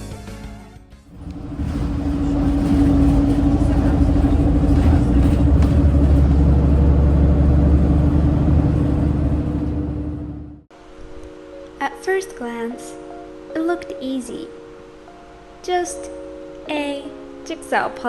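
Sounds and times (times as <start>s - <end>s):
vehicle engine rumbling: 1.1s - 10.7s.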